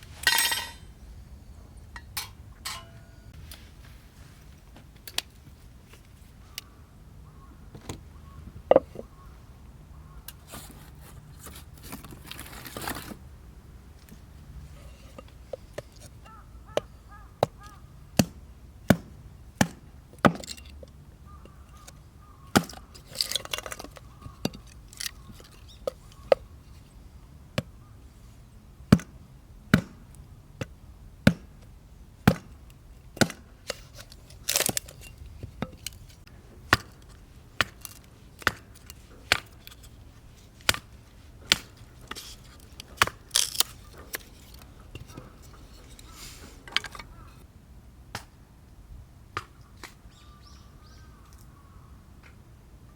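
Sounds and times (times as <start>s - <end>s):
hatchet chopping wood: 18.2s - 20.6s, 22.5s - 22.9s, 28.9s - 30.0s, 30.6s - 31.6s, 32.3s - 32.6s, 33.2s - 33.5s, 37.6s - 39.5s, 43.0s - 43.7s
wood cracking apart: 43.0s - 43.8s.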